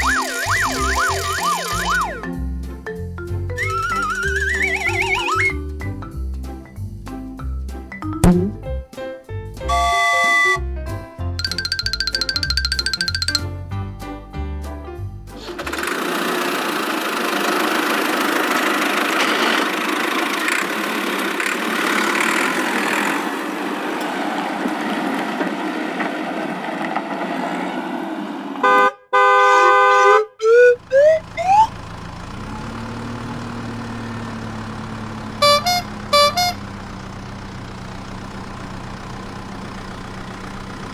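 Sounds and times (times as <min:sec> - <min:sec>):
quick rising tones: 0:00.0 - 0:02.4, 0:03.6 - 0:05.6, 0:08.2 - 0:08.7
cartoon engine rumble: 0:00.0 - 0:02.5, 0:03.3 - 0:05.9, 0:08.2 - 0:08.8, 0:09.7 - 0:10.6, 0:30.5 - 0:40.9
engine idling: 0:00.0 - 0:07.2, 0:09.6 - 0:10.6, 0:15.3 - 0:23.5, 0:30.8 - 0:40.9
short horn toots: 0:09.6 - 0:10.6, 0:35.3 - 0:36.8
horn blast: 0:09.6 - 0:10.7, 0:35.2 - 0:37.0.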